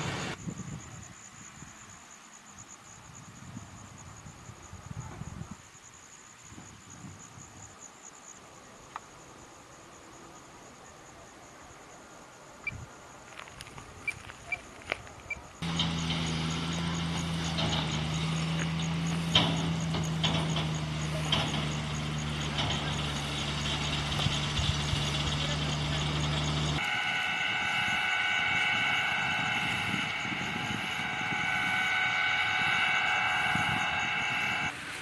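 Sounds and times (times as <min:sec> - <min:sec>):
heavy truck engine running: 0:00.0 - 0:00.4, 0:15.5 - 0:35.0
high-pitched steady whine: 0:15.3 - 0:35.0.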